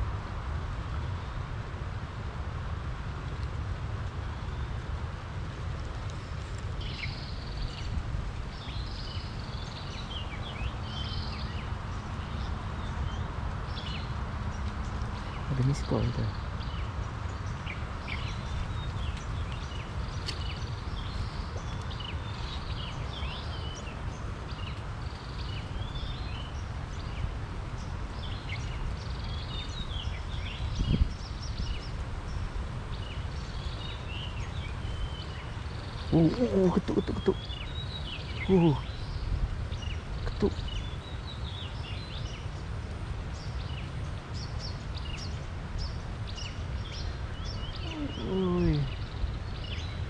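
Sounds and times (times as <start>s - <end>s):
bird chirping: 6.8s - 42.6s, 43.4s - 50.0s
birds chirping and whistling: 44.4s - 50.0s.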